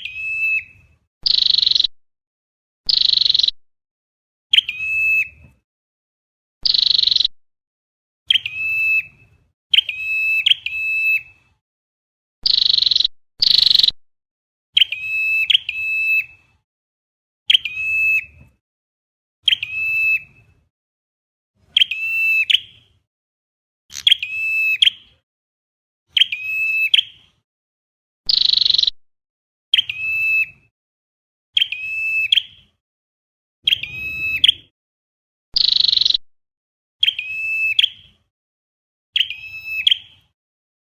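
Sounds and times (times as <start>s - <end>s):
harsh buzzy bird calls: 0.0s - 1.9s, 2.9s - 3.6s, 6.6s - 7.3s, 12.4s - 14.0s, 23.9s - 25.2s, 28.3s - 29.0s, 33.6s - 34.7s, 35.6s - 36.2s
high-pitched bird calls: 0.0s - 1.9s, 2.9s - 3.6s, 4.5s - 5.4s, 6.6s - 7.3s, 8.3s - 11.4s, 12.4s - 14.0s, 14.8s - 16.5s, 17.5s - 18.4s, 19.4s - 20.6s, 21.7s - 22.9s, 23.9s - 25.2s, 26.1s - 27.2s, 28.3s - 29.0s, 29.7s - 30.7s, 31.6s - 32.8s, 33.6s - 34.7s, 35.6s - 36.2s, 37.0s - 38.2s, 39.2s - 40.4s.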